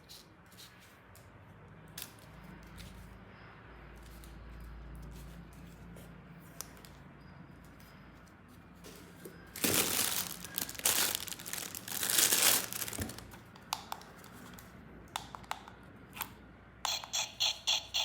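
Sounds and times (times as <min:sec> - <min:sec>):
plastic packaging crinkling and tearing: 0:09.6 - 0:13.4
fast repeating pulsing sound: 0:16.9 - 0:18.0.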